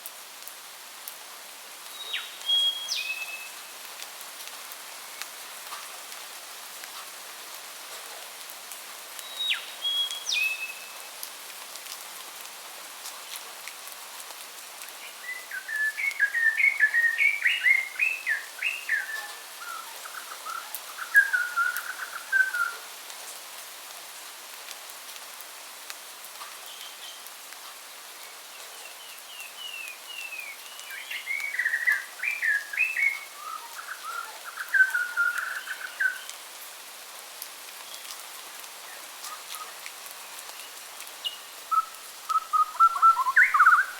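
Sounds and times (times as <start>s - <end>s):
rain hissing: 0.0s - 43.9s
bird whistled call: 2.0s - 3.5s, 15.3s - 22.8s, 29.7s - 36.3s, 41.3s - 43.9s
songbird warbling: 15.6s - 22.7s, 30.9s - 36.3s, 41.2s - 43.9s.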